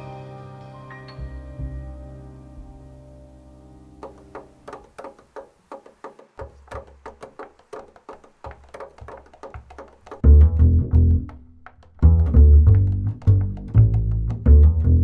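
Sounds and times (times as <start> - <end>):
tapped percussion strikes: 0.0 - 3.1, 4.0 - 11.9
held chord ringing: 0.0 - 4.6.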